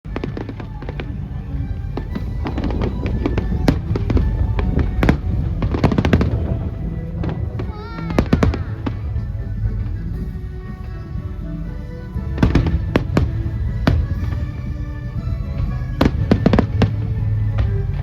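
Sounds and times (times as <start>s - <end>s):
fireworks bangs and crackles: 0.1s - 10.0s, 15.6s - 18.0s
low rumble: 0.1s - 18.0s.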